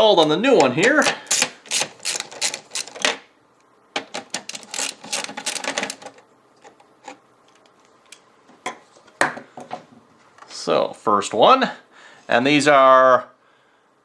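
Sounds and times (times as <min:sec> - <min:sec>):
small hard parts clicking: 0:00.8 - 0:03.2, 0:04.0 - 0:07.6.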